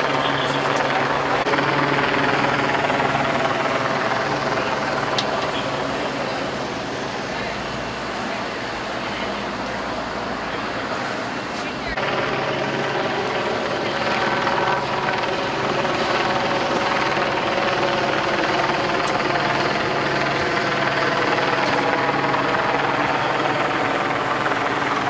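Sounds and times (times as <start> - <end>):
helicopter running: 0.0 - 25.0.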